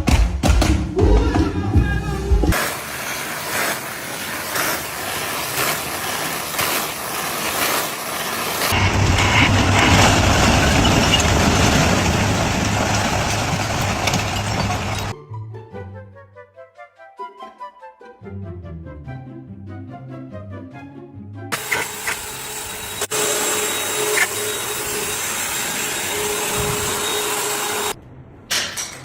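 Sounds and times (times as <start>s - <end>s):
heavy engine humming: 1.8s - 15.2s, 21.6s - 29.0s
knocks and clatter: 7.6s - 15.2s.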